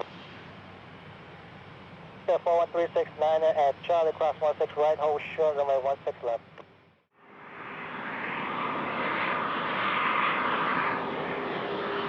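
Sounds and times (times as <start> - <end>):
aircraft engines running: 0.0 - 12.0.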